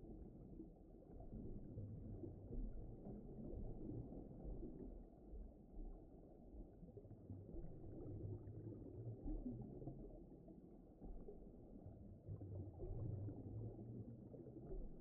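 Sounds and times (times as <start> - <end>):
muffled underwater rumble: 0.0 - 15.0.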